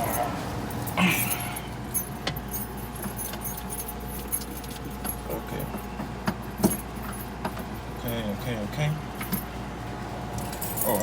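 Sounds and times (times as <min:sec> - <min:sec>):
keys rattling: 0:00.0 - 0:05.8.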